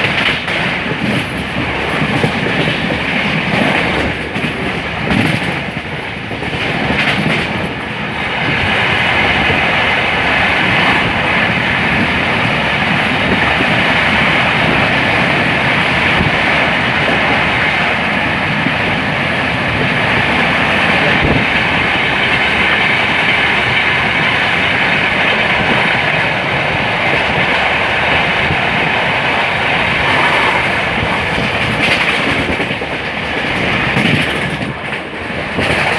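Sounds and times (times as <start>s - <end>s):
train wheels rolling on rail: 0.0s - 35.9s.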